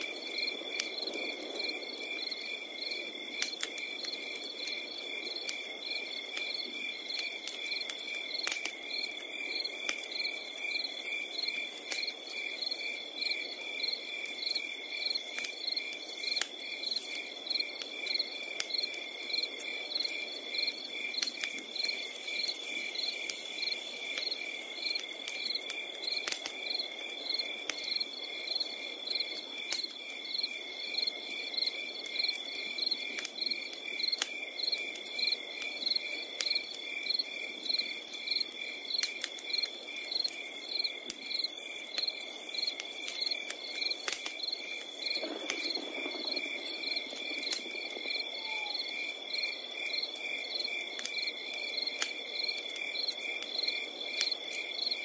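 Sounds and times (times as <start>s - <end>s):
campfire crackling and popping: 0.0s - 55.0s
crickets chirping: 0.0s - 55.0s.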